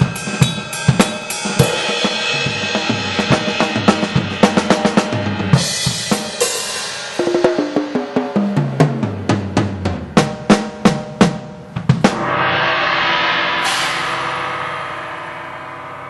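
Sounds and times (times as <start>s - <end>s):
crash cymbals ringing: 0.0s - 7.2s, 12.1s - 16.0s
tom drum fill: 0.0s - 16.0s.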